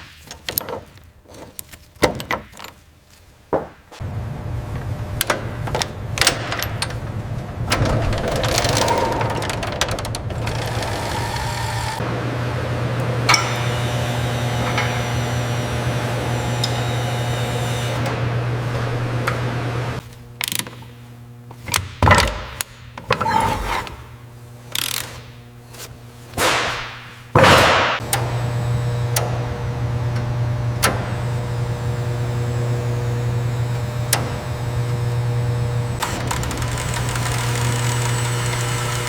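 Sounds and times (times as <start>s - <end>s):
engine humming: 4.0s - 20.4s
tools clicking and ratcheting: 20.4s - 20.9s, 24.7s - 25.2s.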